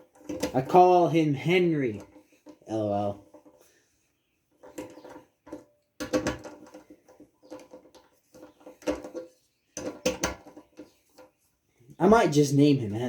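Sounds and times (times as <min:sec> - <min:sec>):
engine parts knocking and clinking: 0:04.5 - 0:11.0.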